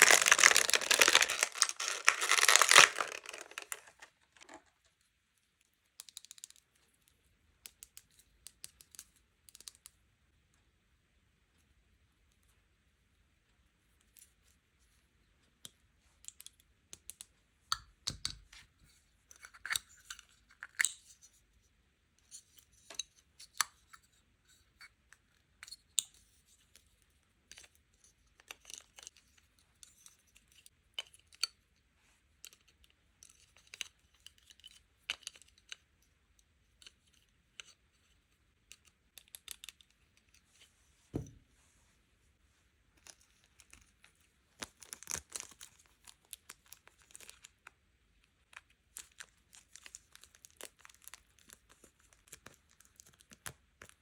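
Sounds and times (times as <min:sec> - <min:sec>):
plastic packaging clicks and rustles: 0:00.0 - 0:04.8, 0:43.0 - 0:47.6, 0:48.9 - 0:54.0
soft thump: 0:41.1 - 0:41.4.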